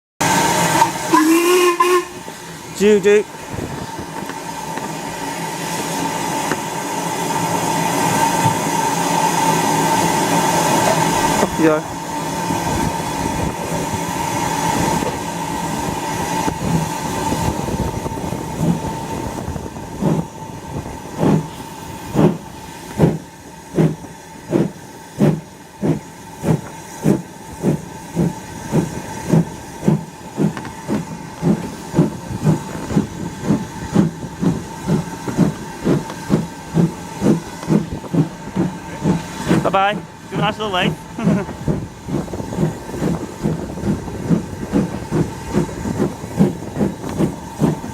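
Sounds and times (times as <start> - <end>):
steam hissing: 0.2 - 47.9
steam locomotive exhaust chuffs: 0.2 - 47.9.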